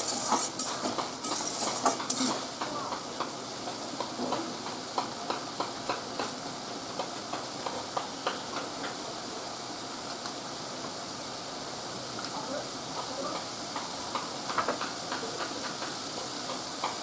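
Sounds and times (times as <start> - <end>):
metal spatula scraping a pan: 0.0 - 2.5
food sizzling in a pan: 0.0 - 17.0.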